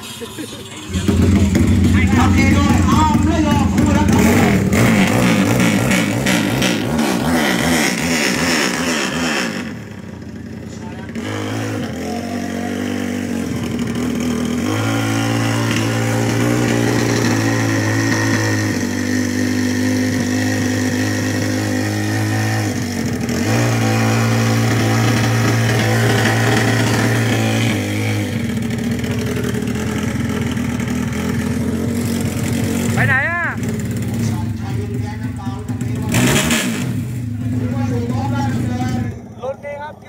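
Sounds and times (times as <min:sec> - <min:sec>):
motorcycle engine revving hard: 0:00.8 - 0:39.5.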